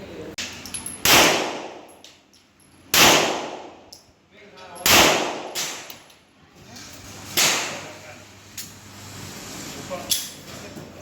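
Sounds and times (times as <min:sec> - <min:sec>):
echoing gunshots: 0:01.0 - 0:01.9, 0:02.9 - 0:03.8, 0:04.9 - 0:06.0.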